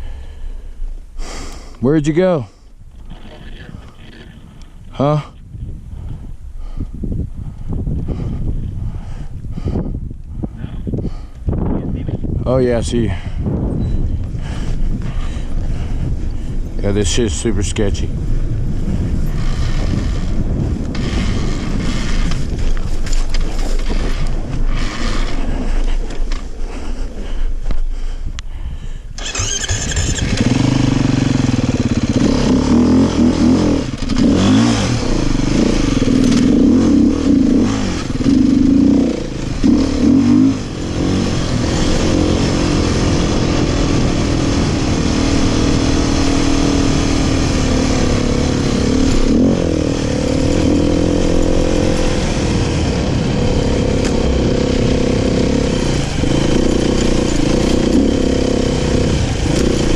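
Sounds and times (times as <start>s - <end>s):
dirt bike engine revving: 19.0s - 26.4s, 29.2s - 59.9s.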